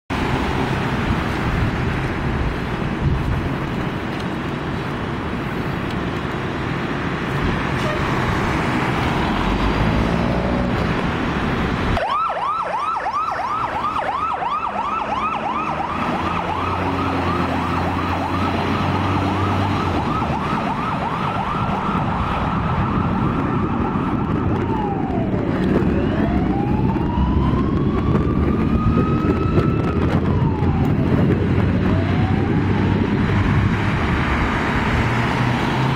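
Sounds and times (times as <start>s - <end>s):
fire engine rumble and road noise: 0.1s - 35.9s
fire engine siren: 7.6s - 35.9s.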